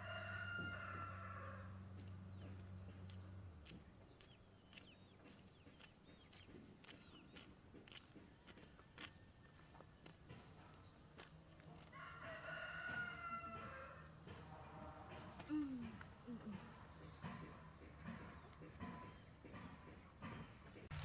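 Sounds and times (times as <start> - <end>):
rooster crowing: 0.0 - 2.4, 11.8 - 15.2.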